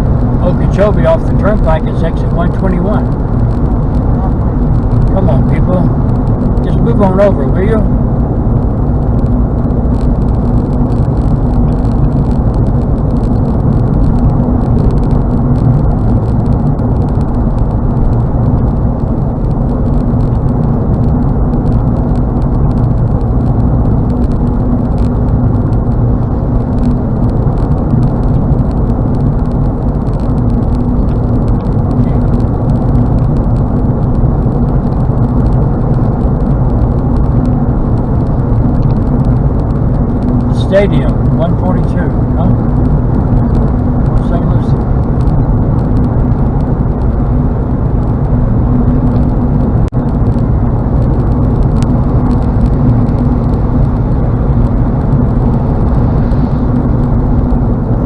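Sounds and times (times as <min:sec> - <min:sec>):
car engine drone: 0:00.0 - 0:58.0.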